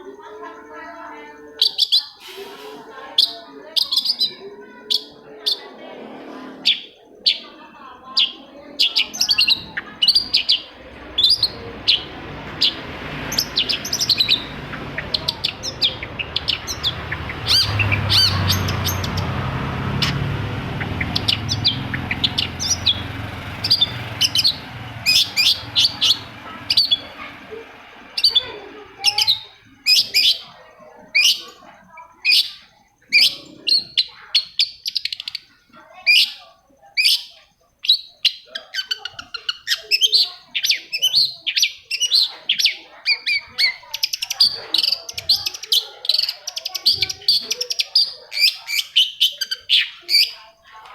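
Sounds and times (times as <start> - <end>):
bird chirping: 0.0 - 5.7, 6.6 - 50.8
low rumble: 9.6 - 28.4.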